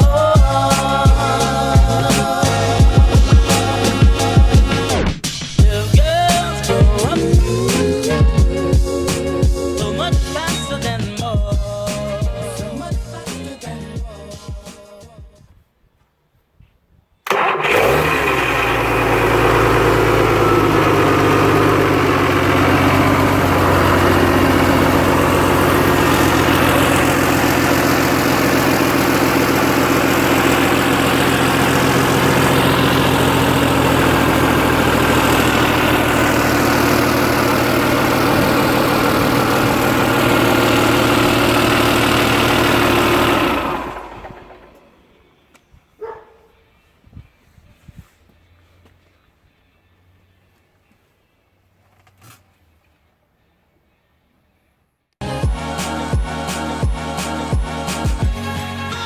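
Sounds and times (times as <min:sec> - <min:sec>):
diesel engine starting and idling: 0:00.0 - 0:14.0, 0:17.2 - 0:45.5.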